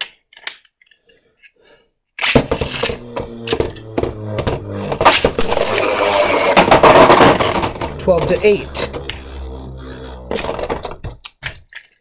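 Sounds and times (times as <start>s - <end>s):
spinning tops whirring: 2.3s - 11.3s.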